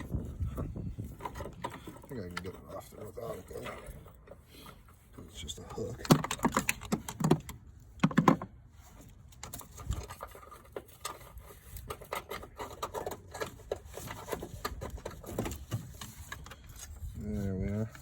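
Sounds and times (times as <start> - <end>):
metal bracket clunks and rattles: 4.8 - 8.6.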